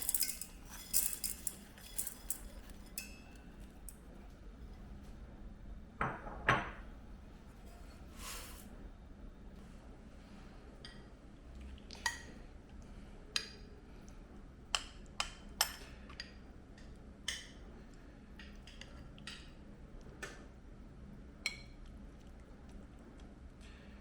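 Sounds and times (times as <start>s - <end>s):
utensils clinking against dishes: 0.0s - 4.1s
faint room hum: 0.0s - 24.0s.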